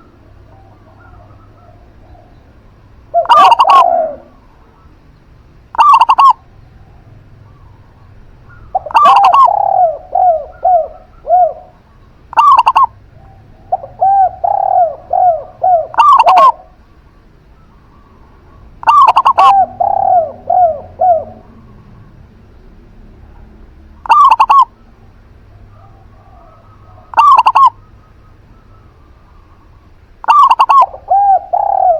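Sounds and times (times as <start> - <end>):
doves cooing: 0.0 - 31.9.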